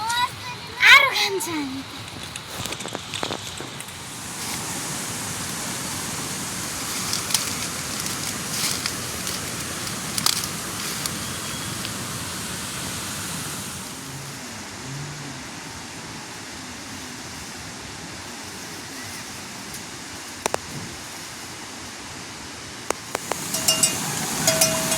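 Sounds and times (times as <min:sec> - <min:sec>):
steady rain falling: 0:00.0 - 0:24.9
sharp raindrop ticks: 0:05.4 - 0:12.0, 0:22.9 - 0:24.9.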